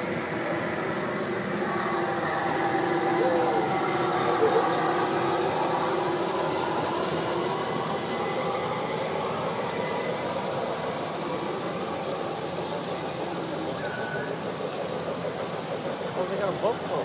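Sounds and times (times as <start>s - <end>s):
model train running on track: 0.0s - 17.0s.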